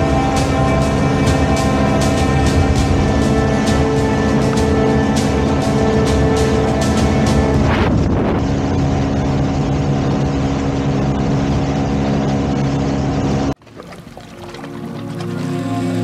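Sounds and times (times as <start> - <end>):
rush of wind and water: 0.0 - 16.0
speedboat engine running: 0.0 - 16.0.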